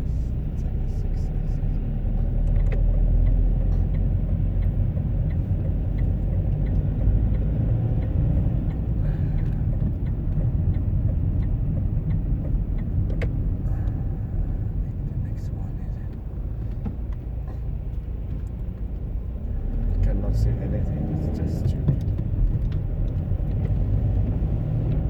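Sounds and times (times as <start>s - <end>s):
car road and engine noise: 0.0s - 25.0s
light regular ticking: 2.0s - 14.0s.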